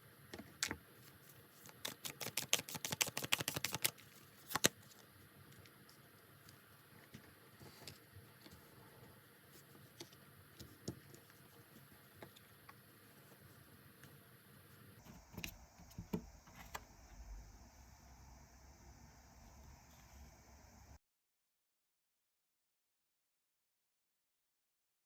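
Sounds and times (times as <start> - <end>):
cards clicking and tapping: 1.6 - 4.8.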